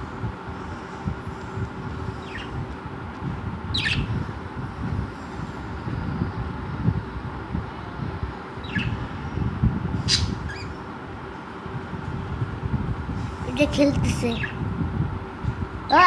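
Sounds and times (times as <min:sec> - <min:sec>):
low steady rumble: 0:00.0 - 0:16.0
budgerigar chirping: 0:03.8 - 0:04.1, 0:08.6 - 0:09.0, 0:10.1 - 0:10.8.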